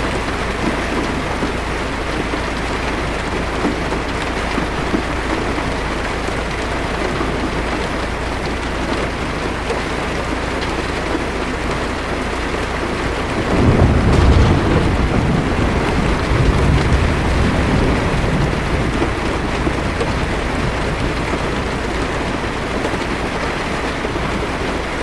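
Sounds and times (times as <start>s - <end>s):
heavy rain on car roof: 0.0s - 25.0s
steady low rumble: 12.1s - 25.0s.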